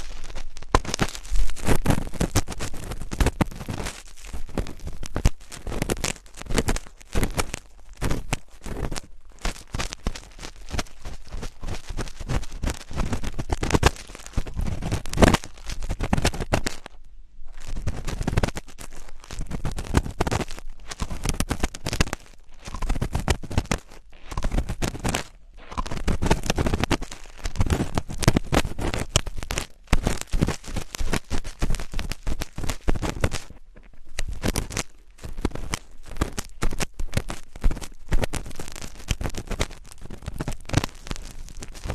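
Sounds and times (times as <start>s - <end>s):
scratching on microphone: 0.0s - 41.9s.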